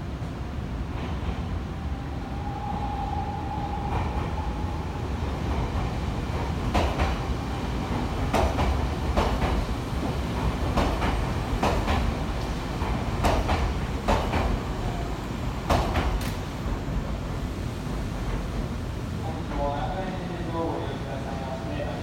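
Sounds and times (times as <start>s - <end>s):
train rumble: 0.0s - 22.0s
train wheels clacking: 5.5s - 9.7s, 10.3s - 14.7s, 15.6s - 16.5s.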